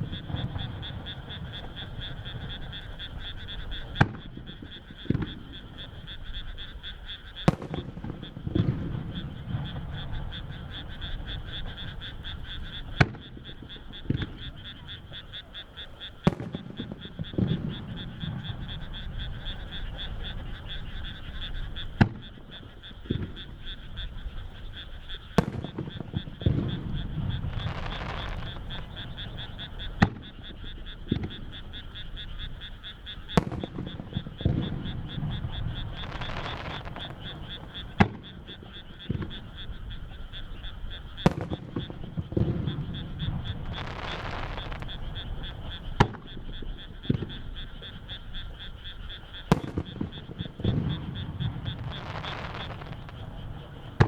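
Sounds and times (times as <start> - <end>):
frogs calling: 0.0 - 54.0
firework shells bursting: 7.4 - 14.8, 16.2 - 19.4, 25.4 - 47.6, 49.4 - 54.0.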